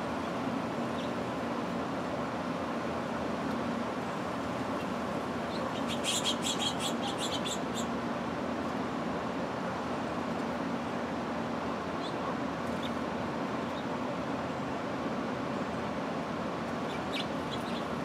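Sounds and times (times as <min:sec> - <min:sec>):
low outdoor hum: 0:00.0 - 0:18.0
bird chirping rapidly: 0:05.5 - 0:07.9, 0:16.9 - 0:18.0.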